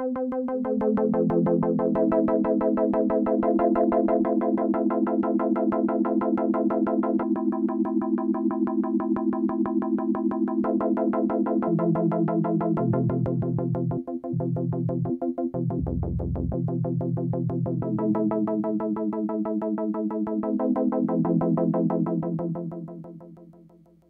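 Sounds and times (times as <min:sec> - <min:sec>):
pulsing synthesizer chords: 0:15.7 - 0:18.0.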